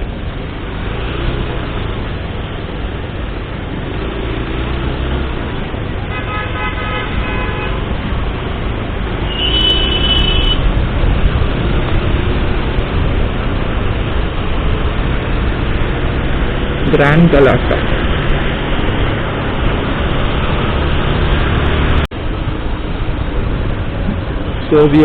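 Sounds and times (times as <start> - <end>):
road traffic and wind rumble: 0.0 - 25.0
vehicle horns: 6.0 - 8.0, 9.2 - 10.7.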